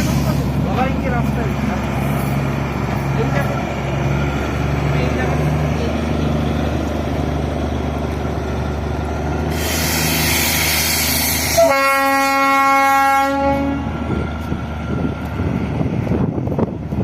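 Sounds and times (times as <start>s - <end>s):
loud hiss: 9.4s - 11.7s
train horn: 11.5s - 14.0s.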